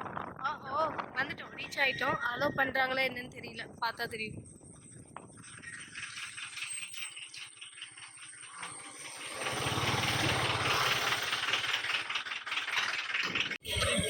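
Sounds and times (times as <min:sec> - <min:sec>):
vehicle engine running with rattling: 0:04.7 - 0:14.0.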